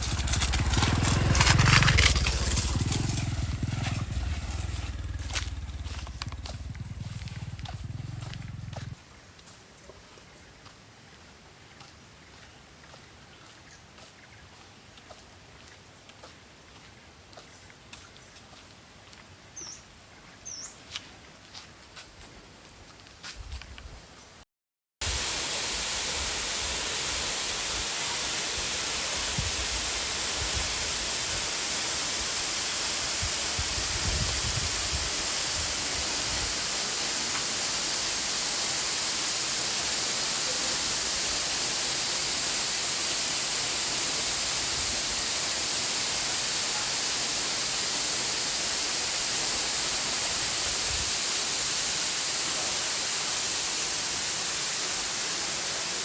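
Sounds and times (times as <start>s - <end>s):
waterfall rushing: 25.0s - 56.0s.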